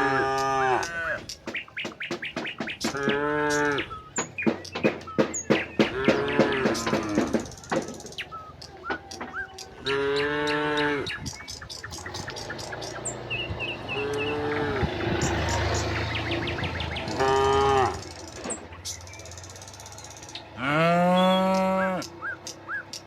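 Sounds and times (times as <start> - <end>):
cows mooing: 0.0 - 1.4, 2.6 - 8.2, 8.8 - 11.2, 13.1 - 18.6, 20.5 - 22.2.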